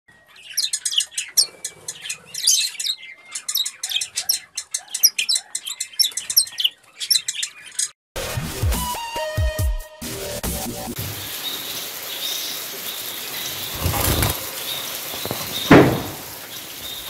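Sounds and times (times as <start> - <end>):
small birds chirping: 0.1 - 8.0, 11.1 - 17.0
electronic music with bass: 8.2 - 11.0.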